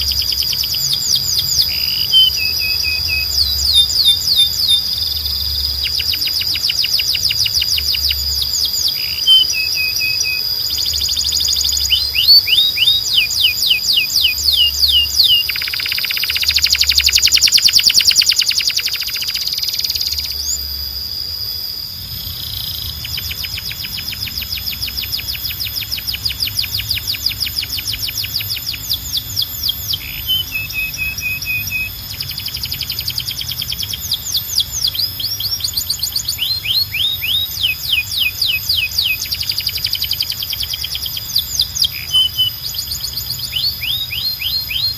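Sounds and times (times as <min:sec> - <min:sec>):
canary singing trills: 0:00.0 - 0:44.9.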